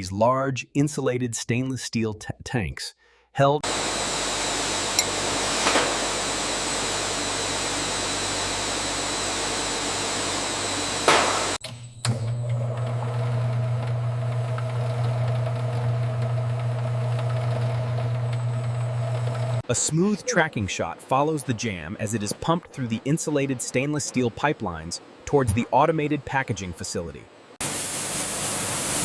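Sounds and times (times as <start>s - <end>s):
factory machinery humming: 3.6s - 20.6s.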